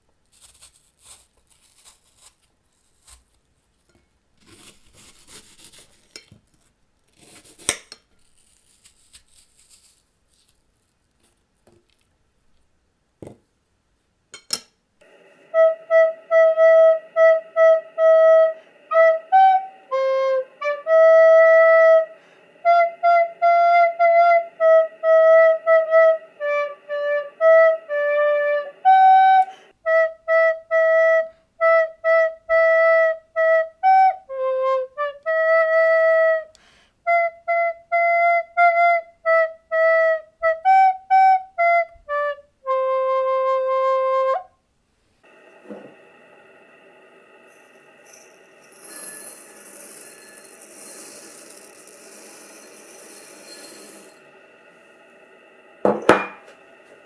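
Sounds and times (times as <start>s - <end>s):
faint steady noise: 0.0s - 57.0s
flute-like wind instrument melody: 15.0s - 44.6s.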